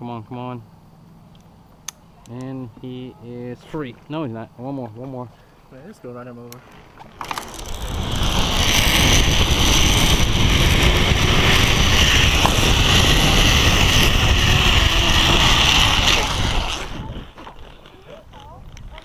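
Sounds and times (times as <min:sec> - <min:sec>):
wind buffeting microphone: 0:06.6 - 0:19.0
zipline pulleys whirring on cable: 0:06.7 - 0:19.0.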